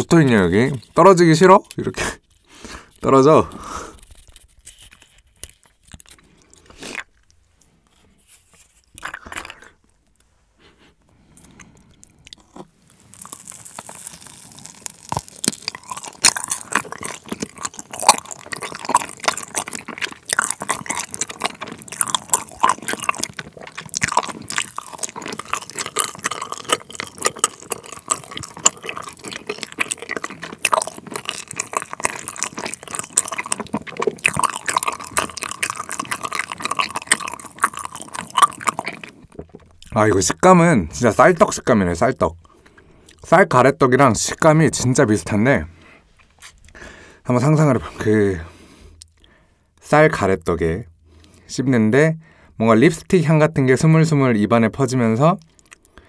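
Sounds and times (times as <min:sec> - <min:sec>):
wet sticky chewing: 0:00.0 - 0:10.2, 0:11.2 - 0:43.4, 0:54.8 - 0:56.0.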